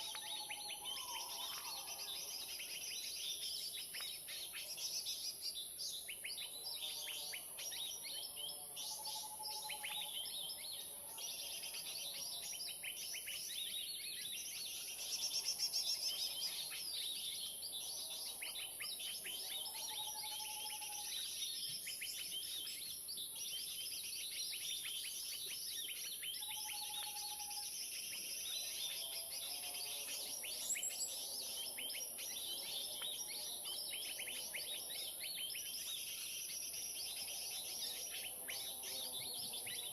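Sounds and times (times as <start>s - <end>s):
small birds chirping and scolding: 26.2s - 39.9s.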